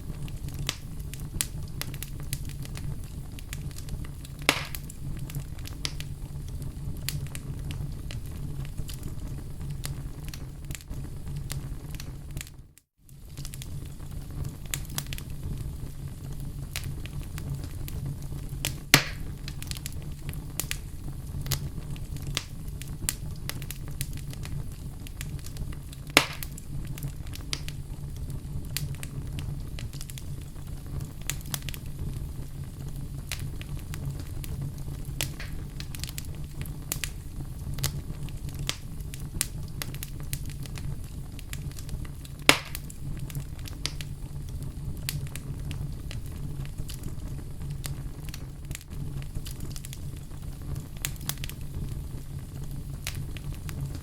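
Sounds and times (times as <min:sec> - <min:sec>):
fire popping: 0:00.0 - 0:54.0
wood fire crackling: 0:00.0 - 0:54.0.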